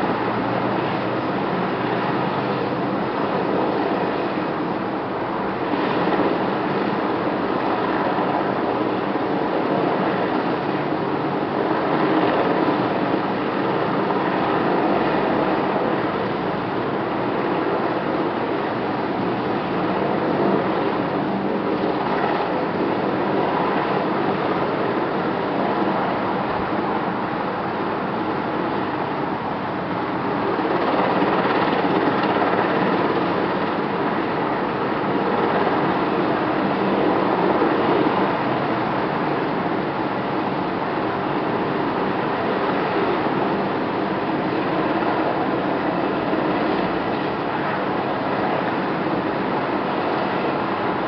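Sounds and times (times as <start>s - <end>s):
helicopter engine and rotor noise: 0.0s - 51.0s.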